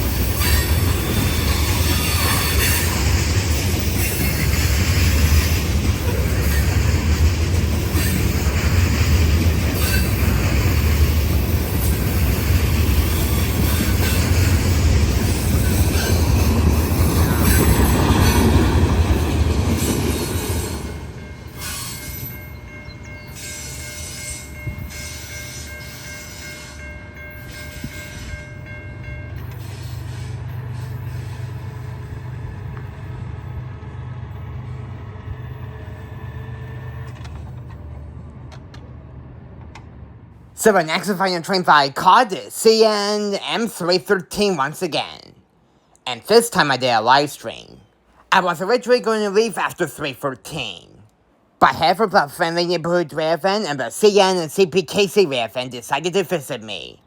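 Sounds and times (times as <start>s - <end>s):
train rumbling on track: 0.0s - 43.6s.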